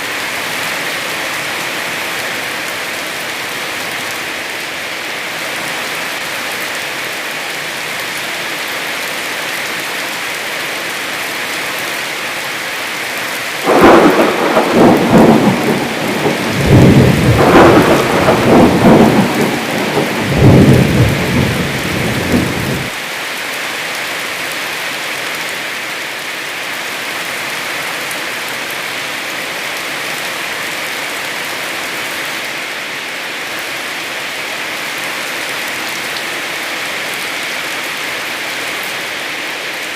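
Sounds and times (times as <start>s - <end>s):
heavy rain falling: 0.0s - 39.9s
rolling peal of thunder: 13.6s - 22.9s.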